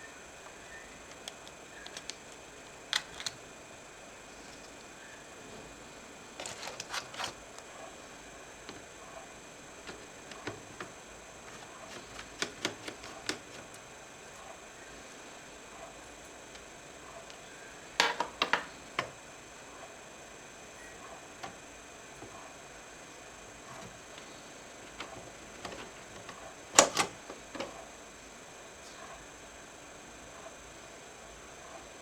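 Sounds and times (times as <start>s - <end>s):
faint steady hiss: 0.0s - 32.0s
laptop parts clicking and tapping: 1.0s - 3.5s, 6.4s - 7.7s, 9.8s - 13.8s, 18.0s - 19.2s, 23.7s - 27.8s.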